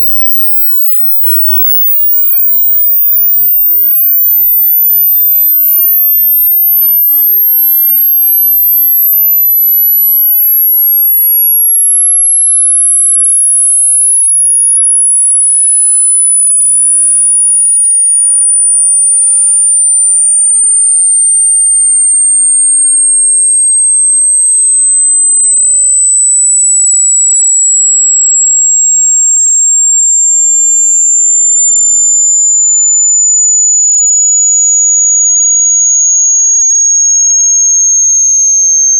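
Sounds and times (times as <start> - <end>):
high-pitched electronic tone: 0.0 - 33.7.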